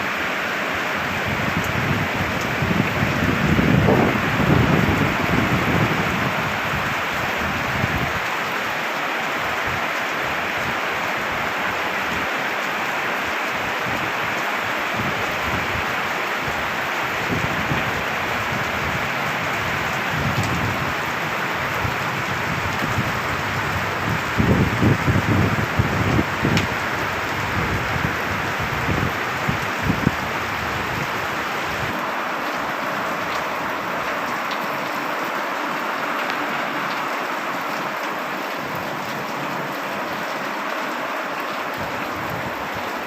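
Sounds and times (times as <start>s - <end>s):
heavy rain falling: 0.0s - 43.0s.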